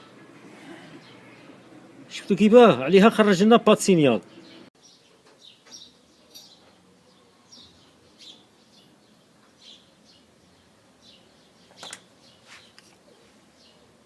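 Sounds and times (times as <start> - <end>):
small bird chirping: 4.3 - 13.9.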